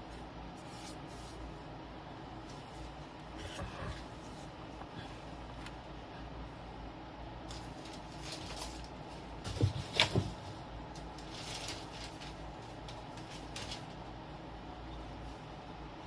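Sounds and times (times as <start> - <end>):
rustling and scraping: 0.0 - 1.6, 2.4 - 5.9, 7.5 - 14.2
low room hum: 0.0 - 16.0.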